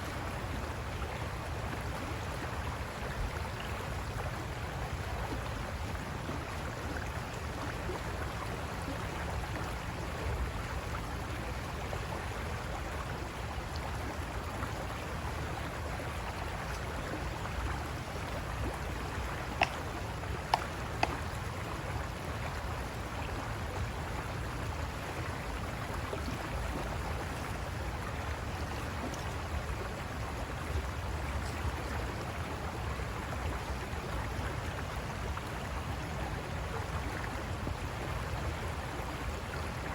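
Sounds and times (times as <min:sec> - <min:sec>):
river water rushing over rocks: 0:12.2 - 0:33.8.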